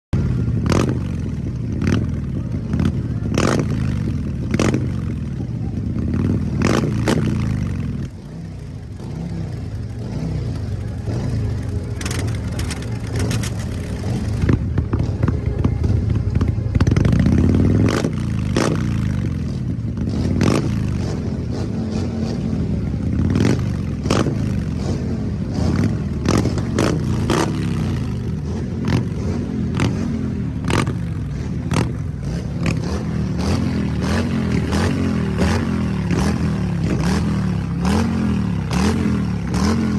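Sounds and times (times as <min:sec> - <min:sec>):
motorcycle engine revving: 0:00.2 - 0:39.9
sharp exhaust cracks: 0:11.6 - 0:14.6.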